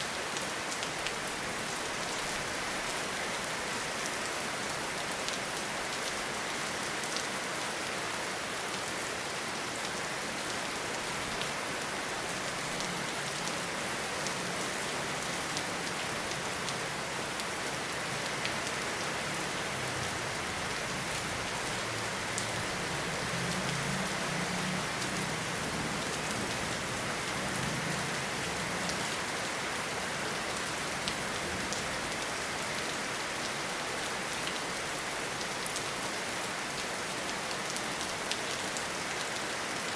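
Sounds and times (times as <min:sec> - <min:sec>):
rain on leaves: 0:00.0 - 0:39.9
rain drops ticking: 0:11.4 - 0:29.2.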